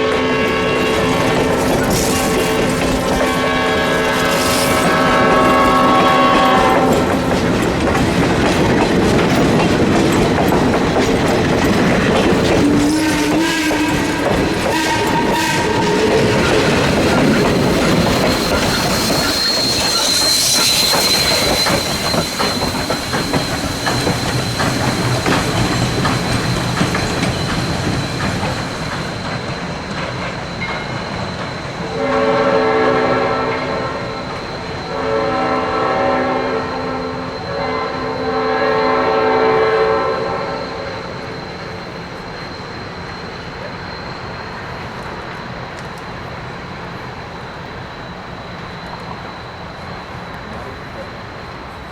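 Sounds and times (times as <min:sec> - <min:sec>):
steam locomotive whistle: 0:00.0 - 0:08.2, 0:12.4 - 0:29.4, 0:31.8 - 0:44.0
steam exhaust rushing: 0:00.0 - 0:51.7
wheels clattering on rails: 0:00.6 - 0:32.1.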